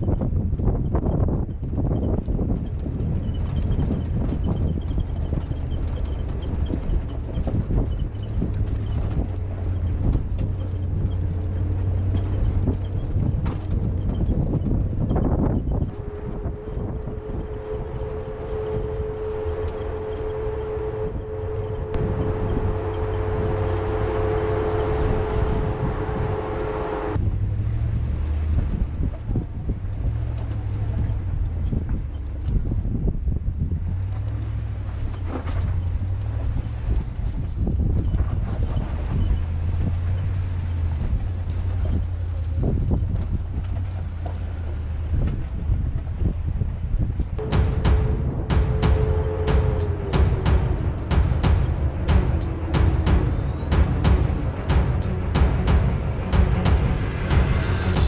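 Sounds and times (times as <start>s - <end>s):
truck rattling: 0.0s - 27.2s, 47.4s - 58.0s
truck engine low hum: 0.0s - 58.0s
steady whine: 3.0s - 27.4s, 47.4s - 58.0s
knocks and rattles: 47.4s - 58.0s.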